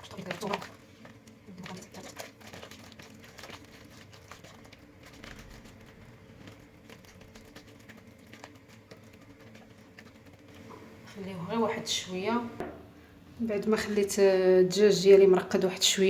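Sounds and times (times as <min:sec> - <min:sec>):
hands mixing meat in bowl: 0:00.0 - 0:12.4.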